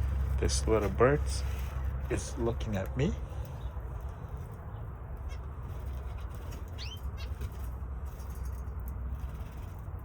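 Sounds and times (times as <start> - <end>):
steady low rumble: 0.0 - 10.0
budgerigars chirping: 6.1 - 7.4.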